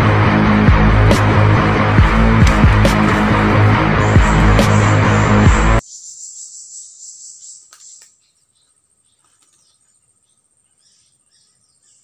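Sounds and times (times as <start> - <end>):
bird chirps: 4.0 - 12.0.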